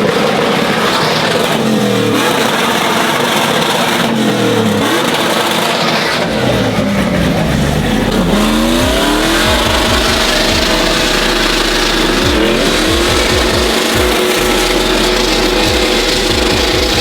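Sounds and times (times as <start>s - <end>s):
vehicle engine revving hard: 0.0s - 17.0s
dense rush of noise: 5.0s - 17.0s.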